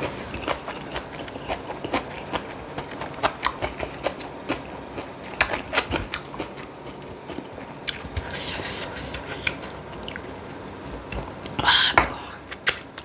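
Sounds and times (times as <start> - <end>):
wet chewing and mouth smacks: 0.4 - 8.3.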